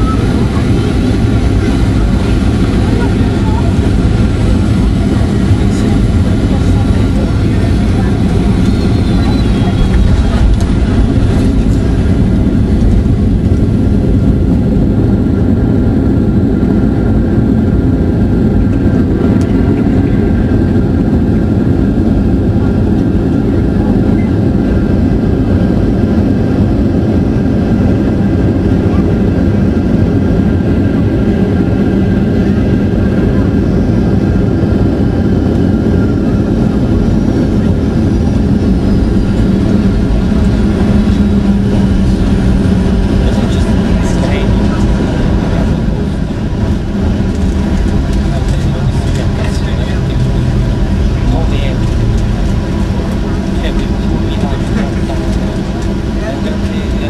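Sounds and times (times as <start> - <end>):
faint engine tones: 0.0 - 57.0
jet engine rumble in cabin: 0.0 - 57.0
rushing air: 36.4 - 56.9.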